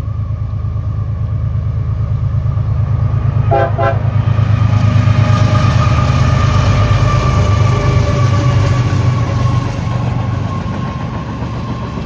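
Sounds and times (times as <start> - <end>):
freight train locomotives rumbling: 0.0 - 12.0
locomotive air horn toots: 3.4 - 4.4.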